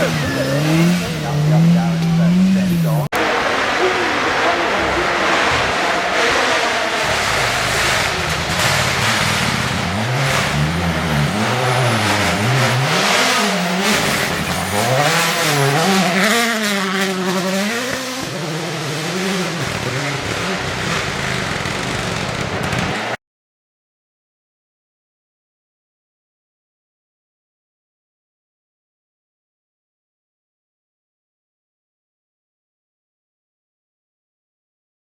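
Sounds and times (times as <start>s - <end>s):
rally car engine revving: 0.0s - 23.2s.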